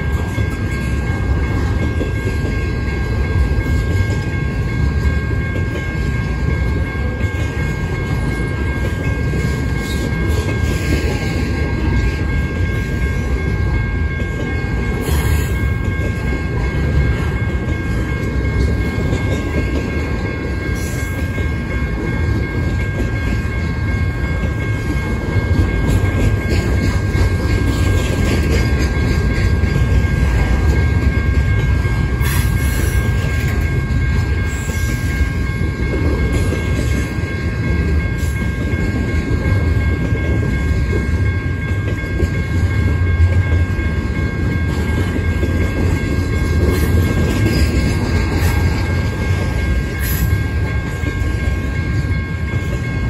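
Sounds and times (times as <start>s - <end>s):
steel wheels rumbling on rail: 0.0s - 53.0s
wheels clickety-clack over joints: 0.0s - 53.0s.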